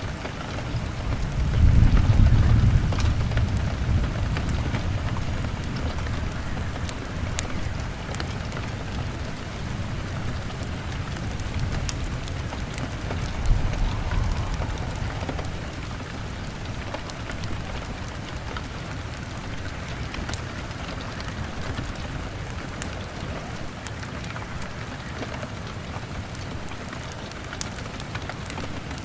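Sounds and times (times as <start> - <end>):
rain on window glass: 0.0 - 15.7
fire crackling: 11.2 - 19.4.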